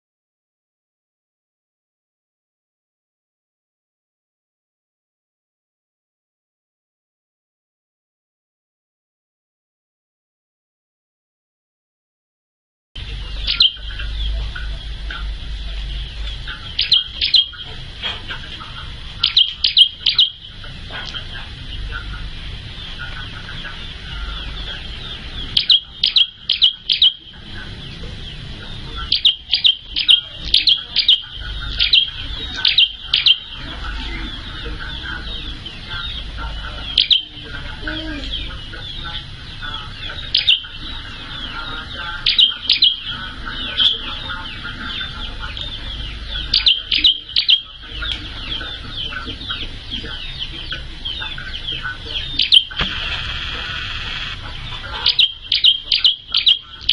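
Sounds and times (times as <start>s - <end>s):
thin high chatter: 13.0s - 56.9s
songbird calling in sharp bursts: 16.0s - 17.7s, 19.2s - 20.5s, 23.9s - 27.4s, 28.3s - 37.4s, 51.1s - 56.9s.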